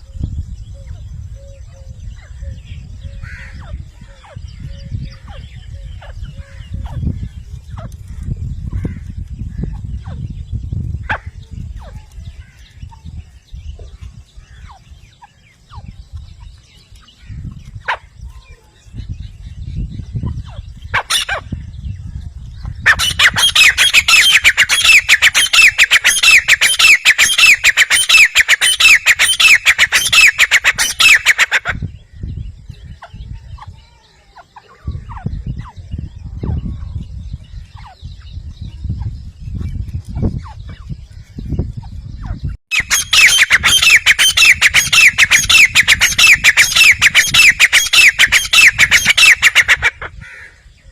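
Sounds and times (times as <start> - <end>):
bird shrill repeated calls: 0.7 - 19.2, 19.8 - 22.0, 22.7 - 36.9, 37.6 - 50.9.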